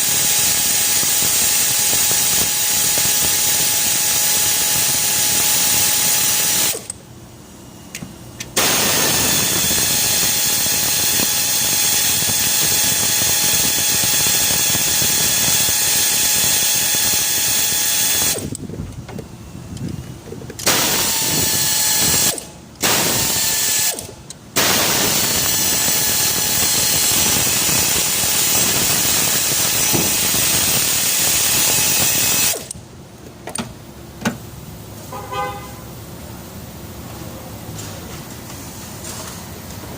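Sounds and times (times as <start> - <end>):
power tool whining and hissing: 0.0 - 7.0, 8.6 - 18.6, 20.6 - 32.8.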